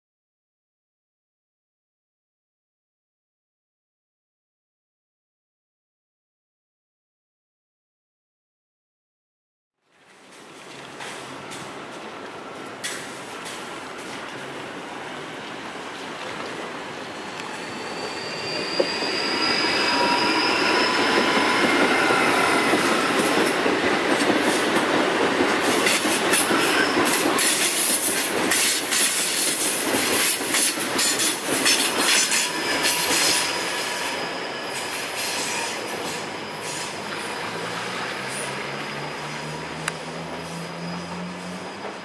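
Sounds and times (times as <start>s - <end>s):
electric train whine: 11.2s - 42.0s.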